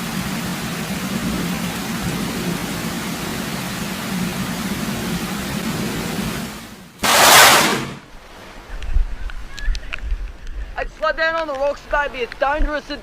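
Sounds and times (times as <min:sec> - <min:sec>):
heavy rain hissing: 0:00.0 - 0:08.6
loud burst of noise: 0:06.3 - 0:08.1.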